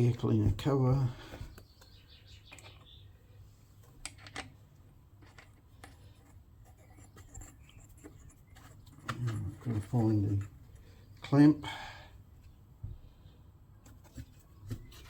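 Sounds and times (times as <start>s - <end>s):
parts clicking and tapping: 1.4s - 3.0s, 3.8s - 11.4s.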